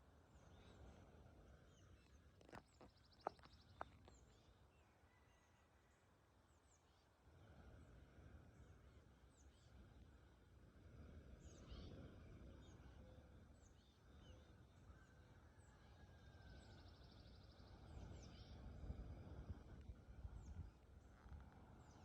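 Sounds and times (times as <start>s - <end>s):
faint bird chirps and trill: 11.4s - 18.8s.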